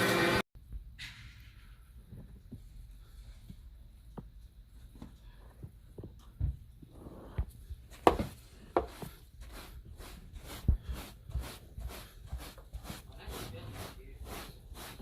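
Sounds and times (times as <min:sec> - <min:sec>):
sharp knocks and thumps: 0:07.4 - 0:09.1.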